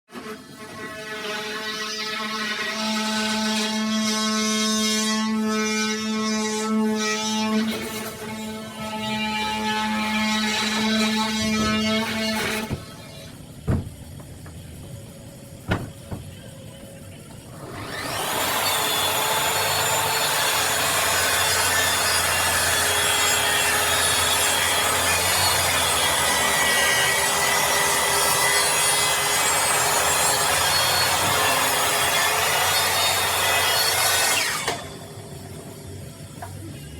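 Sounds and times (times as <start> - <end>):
power tool running: 17.4 - 35.4.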